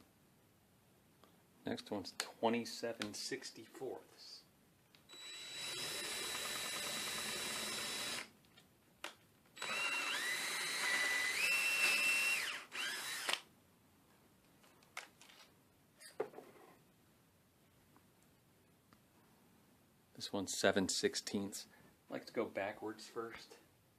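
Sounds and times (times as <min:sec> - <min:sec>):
electric drill drilling wood: 0:05.1 - 0:08.3, 0:09.6 - 0:13.4.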